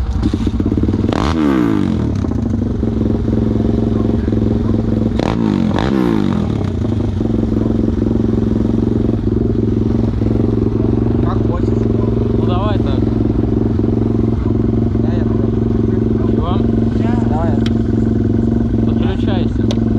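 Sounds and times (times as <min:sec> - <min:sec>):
engine throttle blips: 0:00.0 - 0:19.9
motorcycle engine idling: 0:00.0 - 0:19.9.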